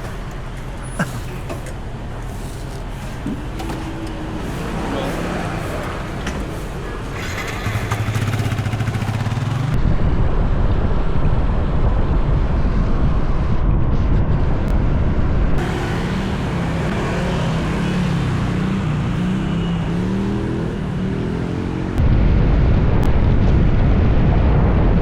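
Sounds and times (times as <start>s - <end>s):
scooter engine running: 3.6s - 9.8s, 15.6s - 21.6s
wind on microphone: 8.5s - 17.8s.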